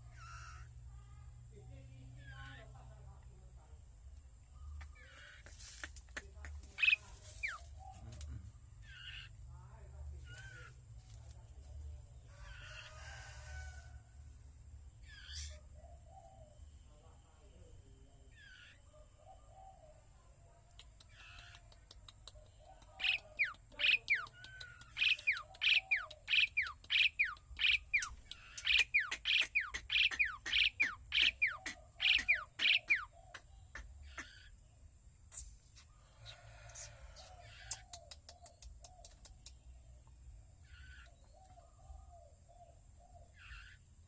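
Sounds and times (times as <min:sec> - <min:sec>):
bird calling sharp down-slurred notes: 0:23.0 - 0:34.6.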